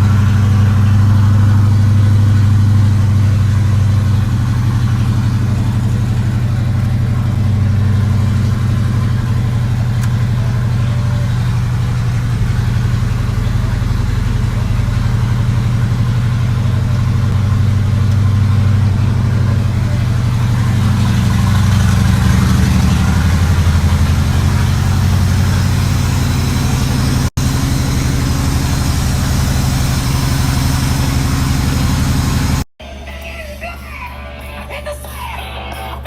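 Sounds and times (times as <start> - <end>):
vehicle engine idling: 0.0 - 36.0.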